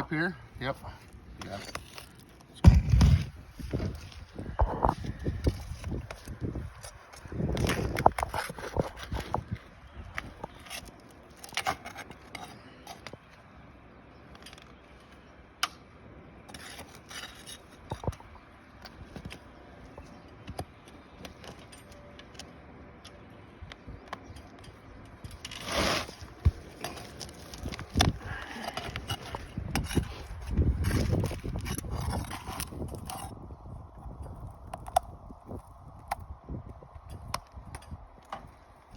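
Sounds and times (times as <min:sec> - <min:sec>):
shingles being pried up: 0:25.2 - 0:30.2
scraping rustle: 0:25.3 - 0:33.3.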